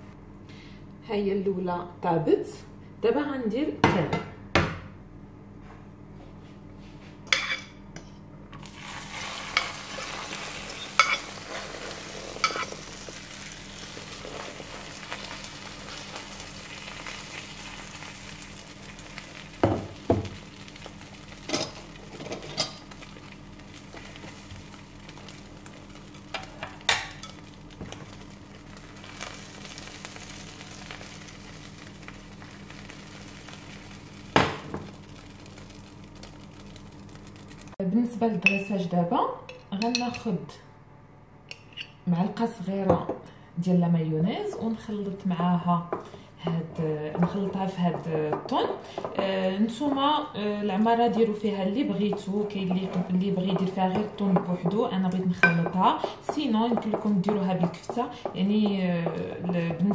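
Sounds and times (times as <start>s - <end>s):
egg mixture sizzling in a frying pan: 8.6s - 37.8s
fork and spatula scraping a pan: 8.8s - 12.8s.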